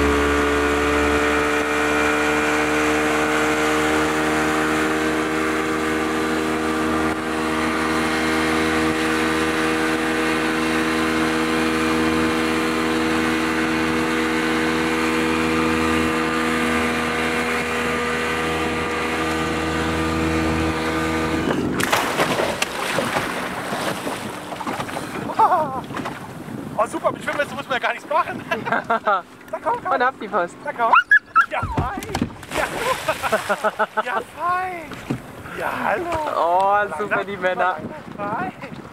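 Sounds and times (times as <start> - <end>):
motorboat engine running: 0.0 - 38.9
water splashing: 0.7 - 26.5, 30.9 - 36.8
wind noise: 19.8 - 28.9, 34.3 - 38.9.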